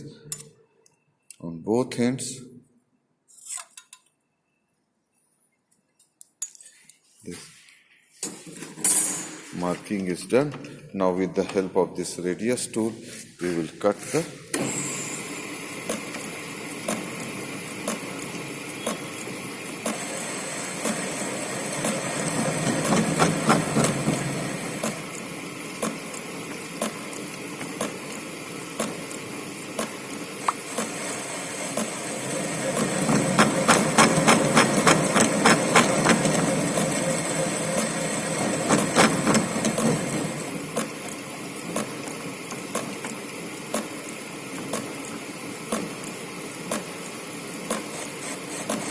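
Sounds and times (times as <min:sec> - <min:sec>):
lathe humming and ticking: 0:14.6 - 0:48.9
tool cutting metal workpiece: 0:29.8 - 0:41.0.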